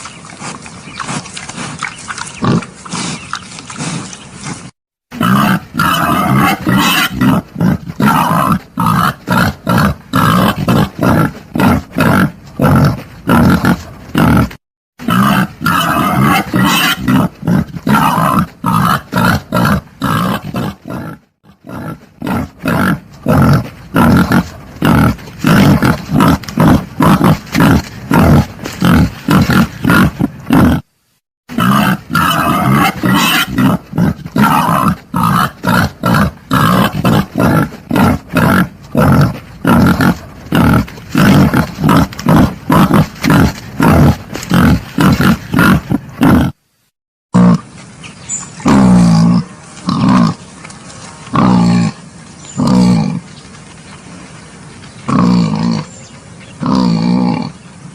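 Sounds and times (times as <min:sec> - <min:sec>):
wild boar grunting: 0:00.4 - 0:30.9, 0:31.5 - 0:46.6, 0:47.4 - 0:47.7, 0:48.6 - 0:50.4, 0:51.2 - 0:53.3, 0:55.1 - 0:56.0, 0:56.6 - 0:57.6.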